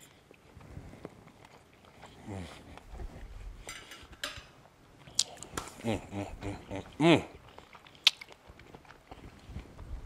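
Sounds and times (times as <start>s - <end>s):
man chewing: 0.0s - 4.1s, 4.9s - 10.0s
man humming mm: 5.8s - 7.4s.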